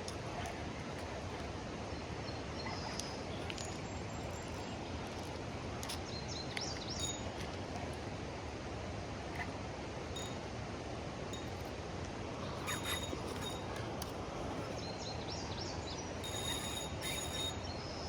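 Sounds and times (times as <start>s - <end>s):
faint bird chirps: 14.6s - 18.0s.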